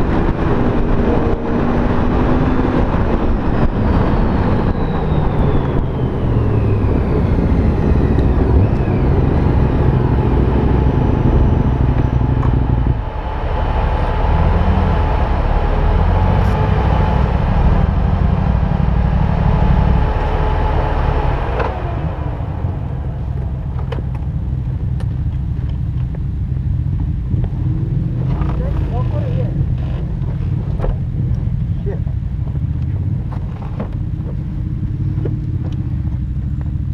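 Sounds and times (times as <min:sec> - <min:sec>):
whine falling in pitch: 0:00.0 - 0:24.4
motorcycle engine rumble: 0:00.0 - 0:36.9
road and wind noise: 0:00.0 - 0:36.9.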